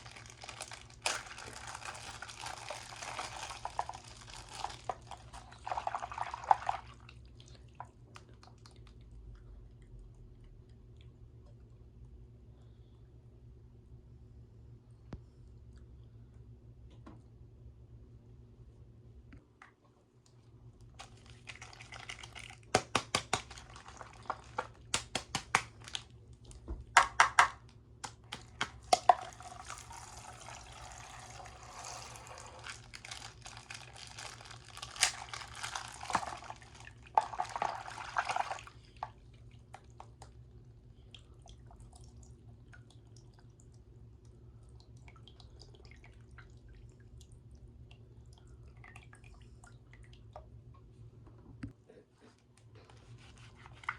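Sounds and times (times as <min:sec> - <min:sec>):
plastic bags crackling: 0:00.0 - 0:05.3, 0:29.3 - 0:37.0
liquid pouring and splashing: 0:00.0 - 0:09.0, 0:21.0 - 0:22.8, 0:23.4 - 0:25.0, 0:28.7 - 0:40.2.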